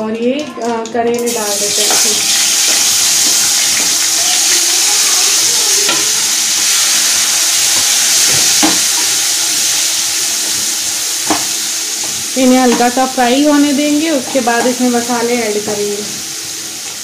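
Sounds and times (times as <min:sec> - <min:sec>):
vegetables sizzling in hot oil: 0:01.2 - 0:17.0.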